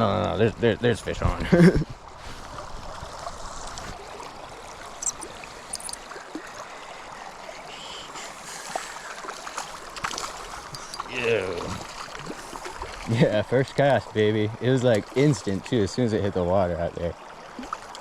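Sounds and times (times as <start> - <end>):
river flowing: 1.9 - 18.0.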